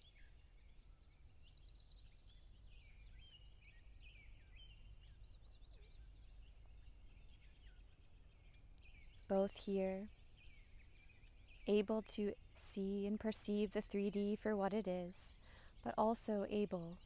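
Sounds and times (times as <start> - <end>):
birds chirping and trilling: 0.0 - 17.0.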